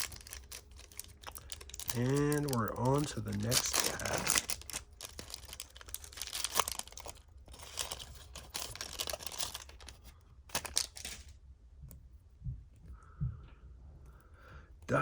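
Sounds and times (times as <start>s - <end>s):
wrapper tearing and crinkling: 0.0s - 11.3s.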